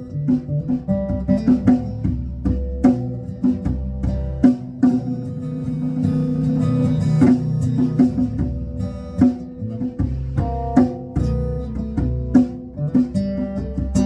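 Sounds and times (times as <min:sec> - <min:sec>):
bass line: 0:00.0 - 0:14.0
guitar playing: 0:00.0 - 0:14.0
regular sharp hits: 0:00.0 - 0:14.0
live band music: 0:10.3 - 0:12.5.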